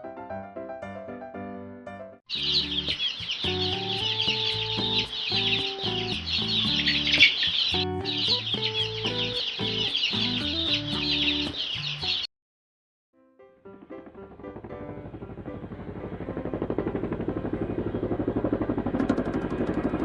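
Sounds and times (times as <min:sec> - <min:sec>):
background music: 0:00.0 - 0:12.2
chickens clucking: 0:02.3 - 0:12.3.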